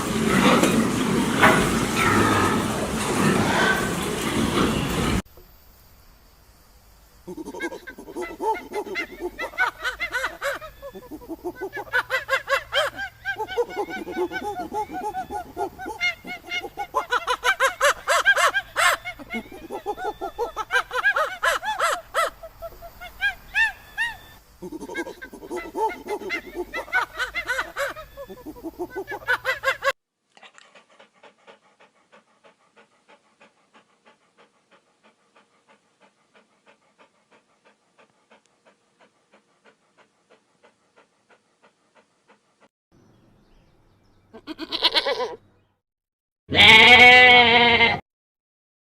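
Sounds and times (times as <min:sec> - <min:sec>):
animal panting: 0:00.0 - 0:05.2, 0:07.4 - 0:42.7
loud animal calls: 0:00.0 - 0:05.2.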